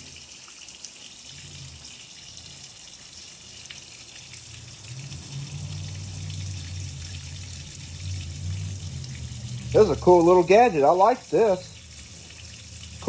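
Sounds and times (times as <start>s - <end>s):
water spraying on pot: 0.0s - 13.0s
low rumble: 4.3s - 11.0s.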